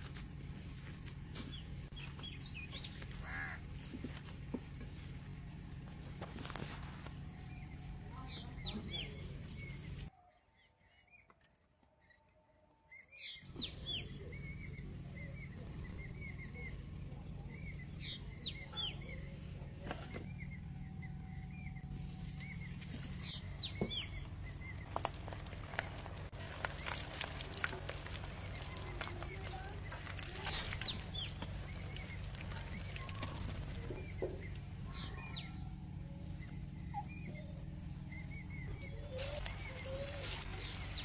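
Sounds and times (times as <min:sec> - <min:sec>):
small birds chirping: 0:00.0 - 0:41.0
steady low hum: 0:13.4 - 0:41.0.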